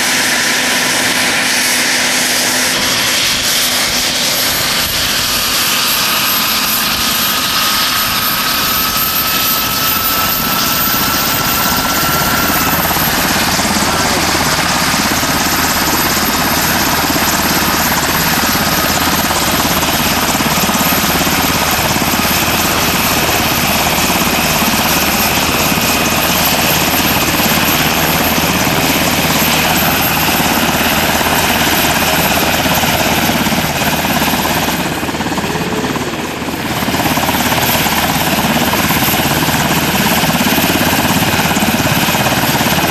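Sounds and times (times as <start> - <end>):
helicopter turbine roar: 0.0 - 42.9.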